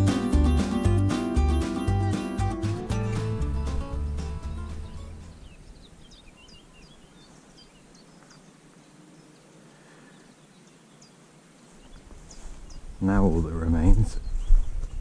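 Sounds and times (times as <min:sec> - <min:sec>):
background music: 0:00.0 - 0:05.4
faint outdoor background noise: 0:00.0 - 0:15.0
small birds chirping: 0:00.0 - 0:15.0.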